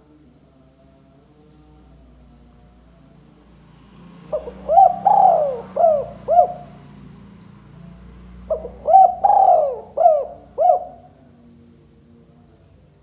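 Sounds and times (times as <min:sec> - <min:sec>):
dove cooing: 0:04.3 - 0:06.8, 0:08.5 - 0:11.2.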